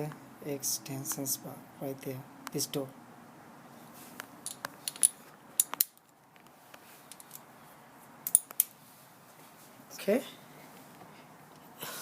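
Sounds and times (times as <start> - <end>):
socket wrench clinking on metal: 4.4 - 6.0, 8.3 - 8.7.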